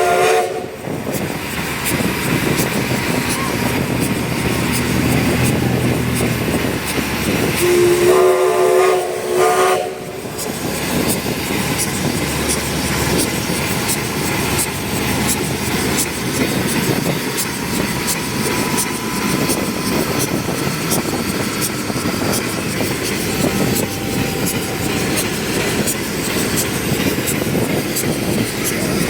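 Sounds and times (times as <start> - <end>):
steam locomotive whistle: 0.0 - 0.9, 3.1 - 10.5, 23.2 - 26.7
steam train rumble and hiss: 0.0 - 29.0.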